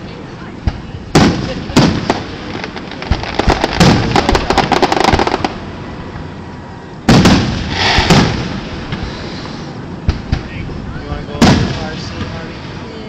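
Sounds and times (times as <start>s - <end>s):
fireworks bursting with loud bangs: 0.6s - 5.7s, 7.1s - 10.7s, 11.3s - 12.9s
rapid crackling pops: 0.7s - 5.6s.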